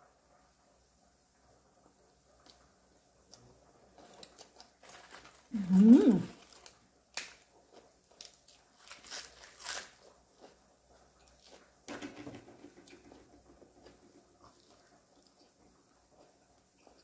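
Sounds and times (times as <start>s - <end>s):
quiet chewing: 2.4s - 11.9s, 12.8s - 17.0s
crunching bites of lettuce: 8.1s - 10.6s.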